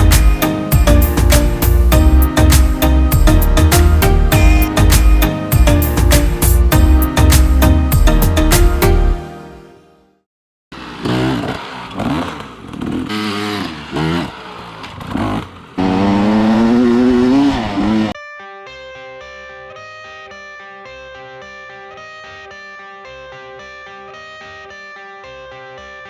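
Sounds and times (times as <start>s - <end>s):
guitar music: 0.0s - 9.6s
dirt bike engine revving: 10.7s - 18.2s.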